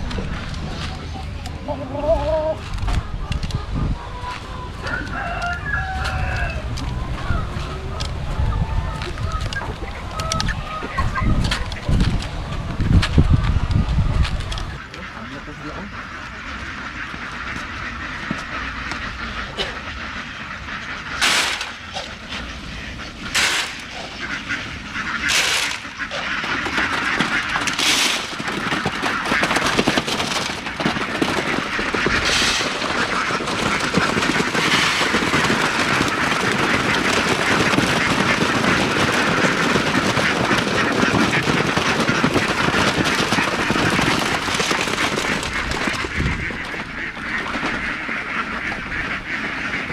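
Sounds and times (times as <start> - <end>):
ducks quacking: 0.0 - 12.3, 14.5 - 49.9
loud sharp duck calls: 14.8 - 49.9.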